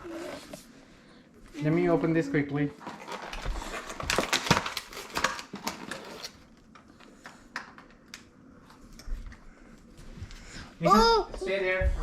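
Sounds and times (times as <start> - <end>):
cardboard and plastic packaging crinkling: 2.8 - 6.8.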